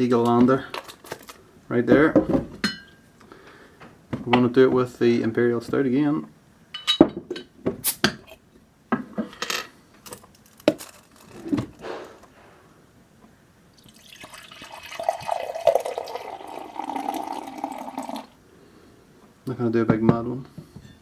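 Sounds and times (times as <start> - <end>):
glass clinking and knocking: 2.2 - 3.0, 6.8 - 7.5, 13.9 - 18.3
beer pouring: 13.8 - 18.4.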